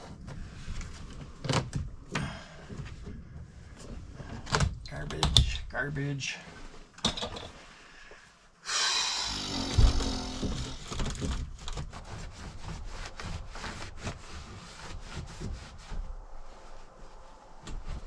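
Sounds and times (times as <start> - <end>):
heavy thump: 9.5 - 10.8.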